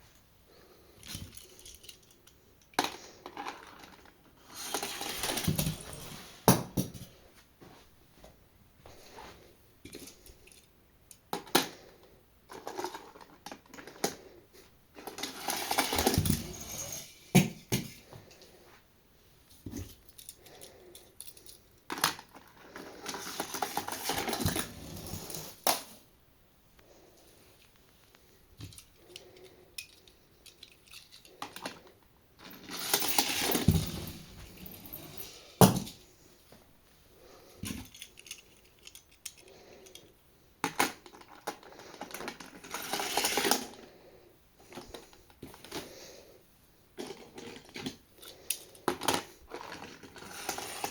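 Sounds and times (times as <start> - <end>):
toy cars rattling and scraping: 0.9 - 6.6, 11.3 - 14.4, 15.0 - 17.4, 19.6 - 25.9, 27.4 - 35.9, 37.5 - 46.2, 47.0 - 50.9
toy cars clicking and knocking: 1.0 - 5.9, 9.8 - 14.3, 15.0 - 18.4, 19.8 - 25.9, 27.6 - 36.0, 37.6 - 43.9, 47.0 - 50.9
rattling slide: 4.4 - 6.5, 32.5 - 35.5.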